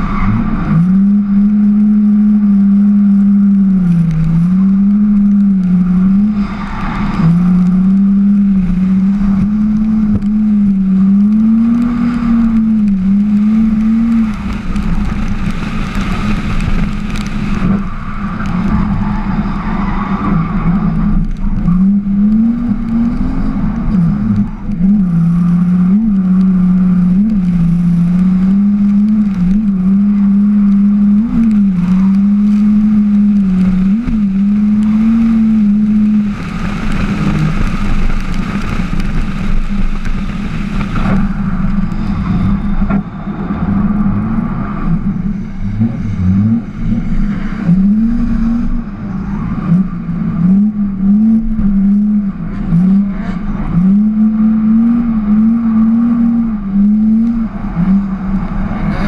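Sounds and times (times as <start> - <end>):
road and wind noise: 0.0 - 59.0
car engine revving hard: 20.2 - 43.0, 43.7 - 59.0.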